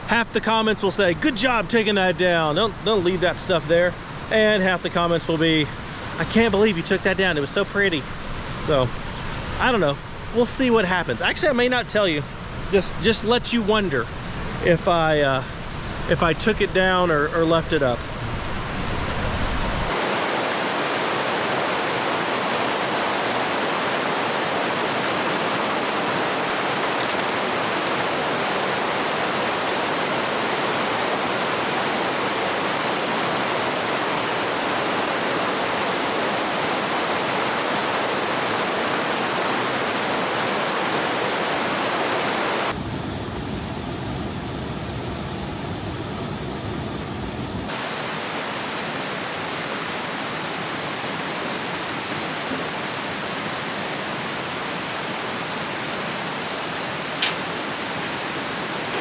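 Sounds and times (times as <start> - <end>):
water rushing over rocks: 19.9 - 59.0.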